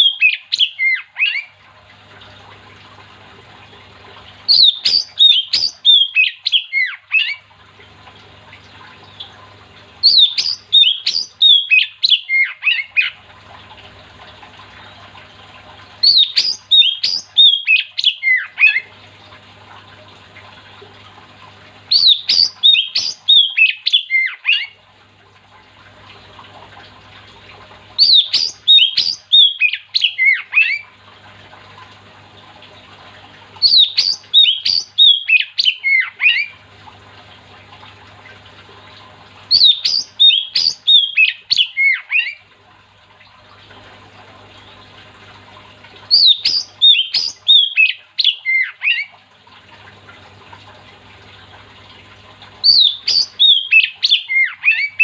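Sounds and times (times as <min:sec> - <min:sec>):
faint steady hum: 0:00.0 - 0:55.0
bird singing whistled notes: 0:10.1 - 0:12.2, 0:28.0 - 0:30.4, 0:33.6 - 0:35.8, 0:39.5 - 0:41.7, 0:46.1 - 0:48.7, 0:52.7 - 0:55.0.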